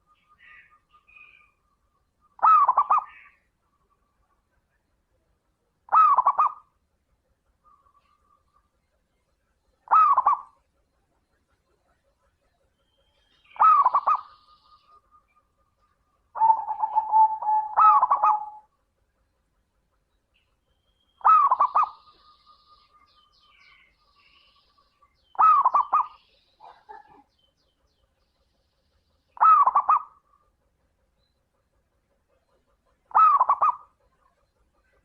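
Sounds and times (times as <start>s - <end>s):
dove cooing: 2.4s - 3.4s, 5.9s - 6.7s, 9.8s - 10.6s, 13.6s - 14.7s, 16.4s - 18.7s, 21.2s - 22.2s, 25.4s - 27.3s, 29.4s - 30.2s, 33.1s - 35.0s.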